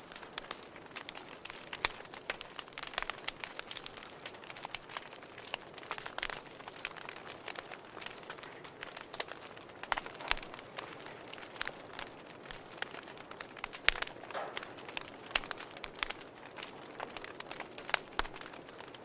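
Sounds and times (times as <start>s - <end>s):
fire crackling and popping: 0.0s - 19.0s
soft steady hiss: 0.0s - 19.0s.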